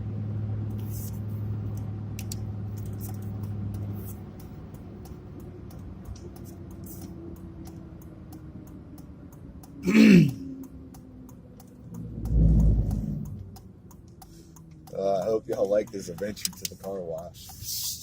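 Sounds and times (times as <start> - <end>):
truck cab hum: 0.0 - 18.0
man clearing throat: 9.8 - 10.4
deep low rumble: 12.0 - 13.6.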